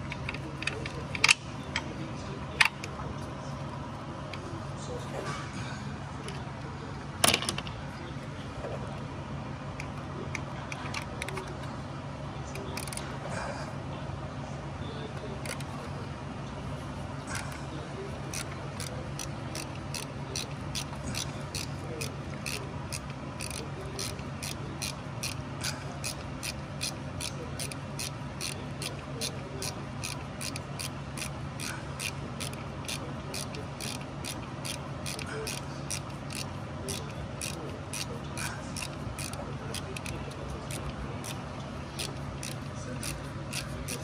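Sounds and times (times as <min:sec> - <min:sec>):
ratchet clicking on metal: 0:00.0 - 0:01.9, 0:12.6 - 0:13.0, 0:18.2 - 0:44.0
steady low hum: 0:00.0 - 0:44.0.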